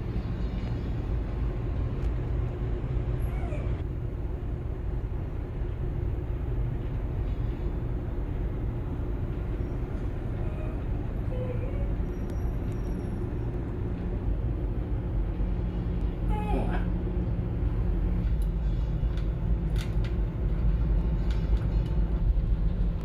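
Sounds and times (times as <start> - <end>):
ferry engines rumbling: 0.0 - 23.0.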